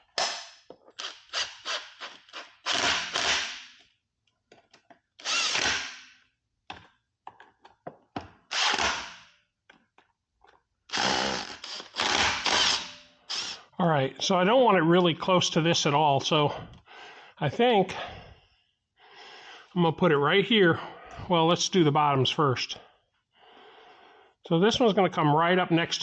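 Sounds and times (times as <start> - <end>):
cordless drill driving fasteners: 0.1 - 3.8, 4.8 - 6.1, 8.5 - 9.2, 10.9 - 13.6
clicks of parts and tool handling: 3.8 - 5.1, 6.7 - 8.3.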